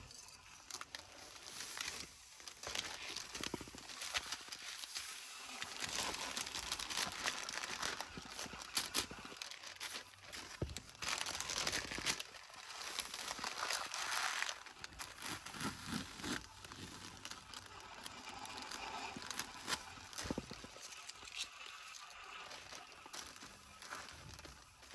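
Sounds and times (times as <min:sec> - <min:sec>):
crackles and clicks: 0:00.0 - 0:24.9
trash crinkling and rustling: 0:00.7 - 0:21.4, 0:22.4 - 0:24.9.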